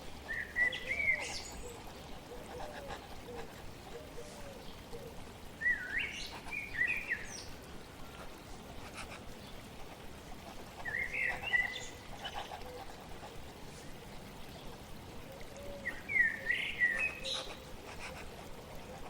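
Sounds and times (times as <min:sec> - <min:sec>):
flowing water hiss: 0:00.0 - 0:19.0
songbird warbling: 0:00.3 - 0:08.2, 0:10.8 - 0:13.0, 0:14.5 - 0:18.2.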